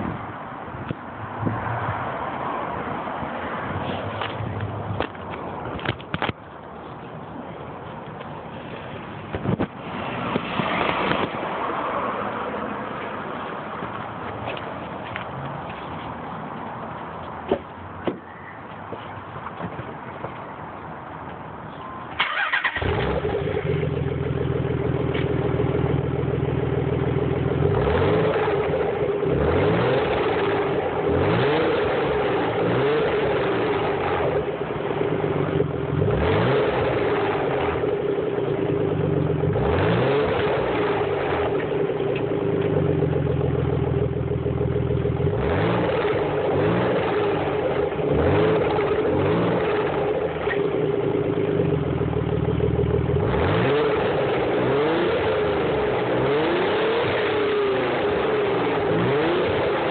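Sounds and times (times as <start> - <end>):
car engine revving: 22.2 - 59.9.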